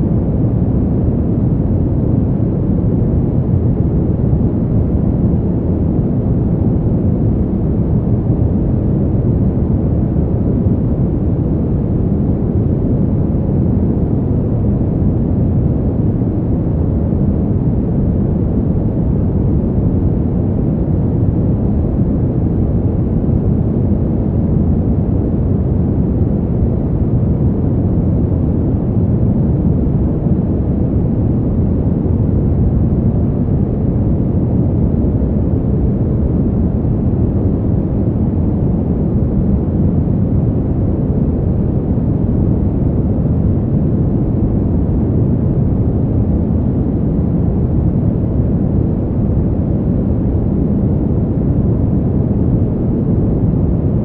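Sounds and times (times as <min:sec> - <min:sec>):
deep rushing wind: 0:00.0 - 0:54.0.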